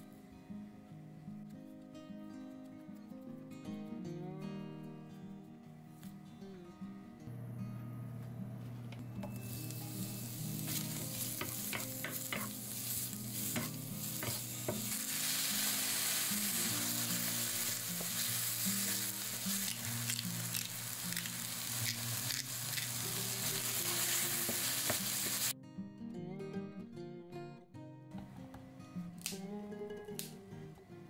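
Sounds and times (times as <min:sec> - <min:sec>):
vegetables sizzling in hot oil: 0:09.4 - 0:25.5.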